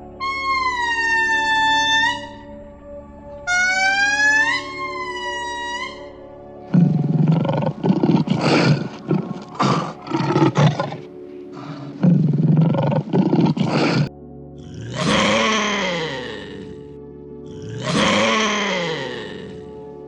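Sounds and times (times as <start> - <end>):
background music: 0.0 - 20.0
big cat roaring and growling: 6.7 - 16.8, 17.5 - 19.7.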